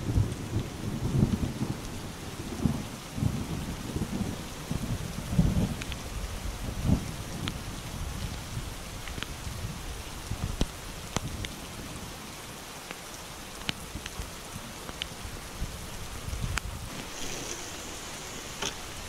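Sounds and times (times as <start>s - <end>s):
low rumble of thunder: 0.0s - 8.8s
heavy rain on a pond: 0.0s - 19.0s
raindrops ticking close by: 0.0s - 19.0s.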